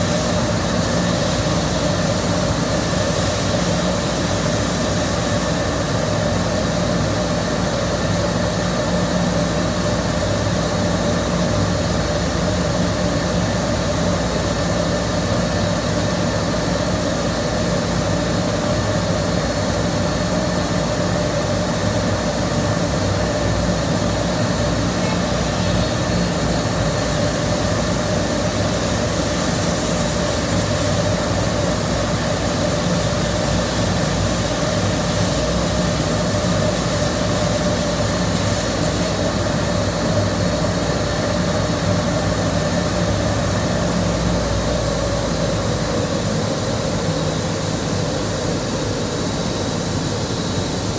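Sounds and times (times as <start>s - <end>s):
boiler roaring: 22.9s - 40.5s.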